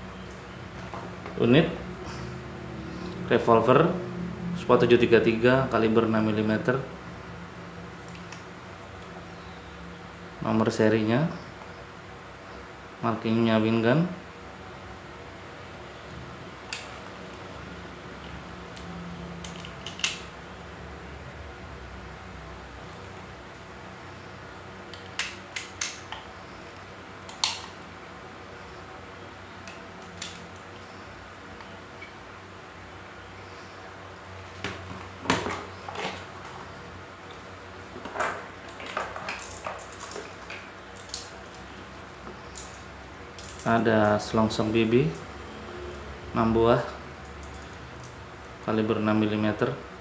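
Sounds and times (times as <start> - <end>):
low steady hum: 0.0 - 50.0
small hard parts clattering: 34.5 - 41.7.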